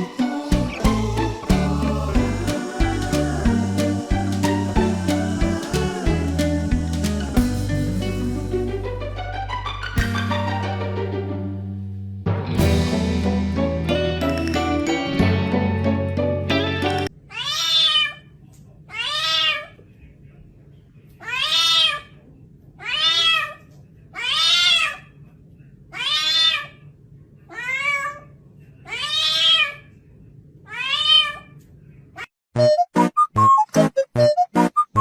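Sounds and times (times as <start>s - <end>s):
kitten meowing: 17.3s - 18.2s, 26.0s - 26.7s, 28.9s - 29.8s.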